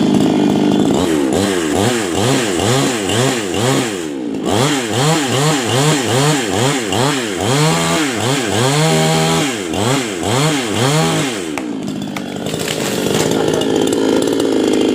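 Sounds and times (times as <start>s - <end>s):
chainsaw engine revving: 0.0s - 14.9s.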